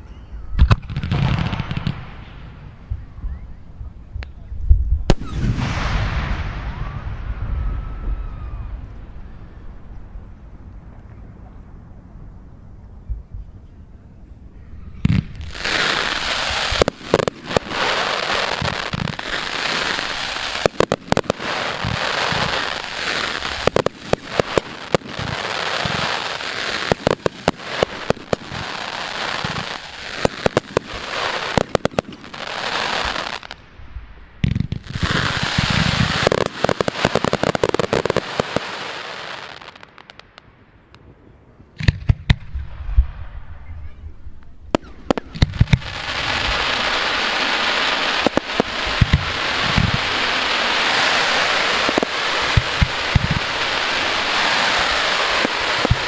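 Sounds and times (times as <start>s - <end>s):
fireworks crackling: 0.5s - 3.2s, 15.0s - 56.0s
firework shells bursting with bangs: 15.0s - 33.5s, 44.7s - 56.0s.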